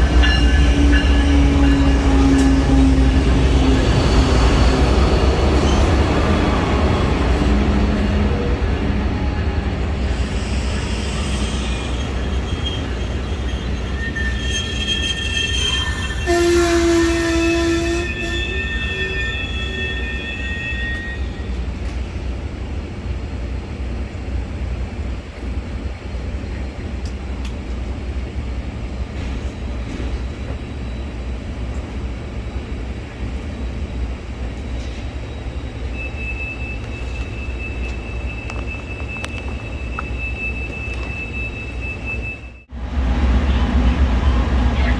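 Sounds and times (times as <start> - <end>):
train horn: 0.0 - 3.8, 14.2 - 21.5
wheel and brake squeals: 0.0 - 6.7, 9.2 - 21.8, 33.4 - 42.7
train rumbling: 0.0 - 44.9.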